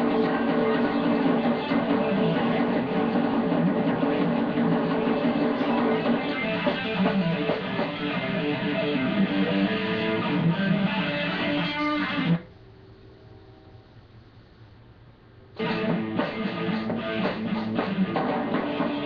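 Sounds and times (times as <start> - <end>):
electric guitar through amplifier: 0.0 - 19.0.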